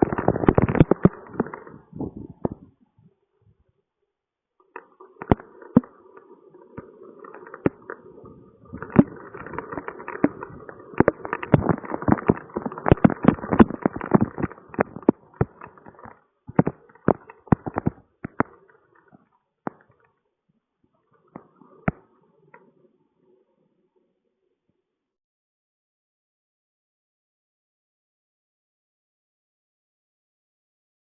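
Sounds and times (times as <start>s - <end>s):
rain drops tapping on hard surface: 0.0s - 1.7s, 4.7s - 20.1s.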